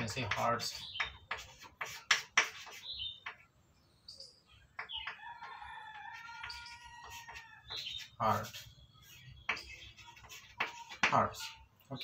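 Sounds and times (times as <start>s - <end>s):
pen scratching on paper: 0.0s - 2.9s, 6.0s - 11.5s
bird chirp: 0.0s - 12.0s
rooster crowing: 5.2s - 7.7s.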